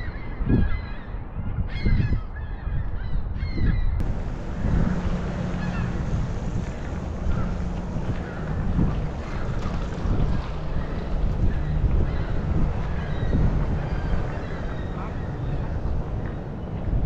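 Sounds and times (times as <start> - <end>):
wind rumbling on microphone: 0.0 - 17.0
birds calling: 3.4 - 17.0
low hum: 4.0 - 17.0.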